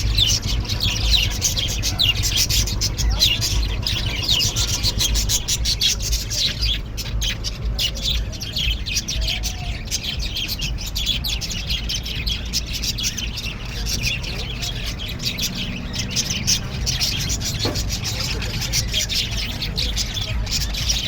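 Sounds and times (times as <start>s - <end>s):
small birds chirping: 0.0s - 21.0s
steady low rumble: 0.0s - 21.0s.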